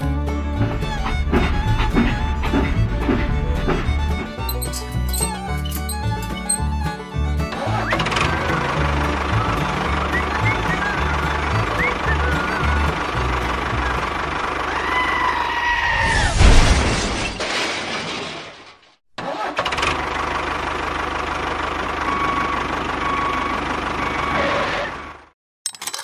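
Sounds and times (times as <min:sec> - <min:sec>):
engine low pulsing rumble: 0:00.0 - 0:15.4.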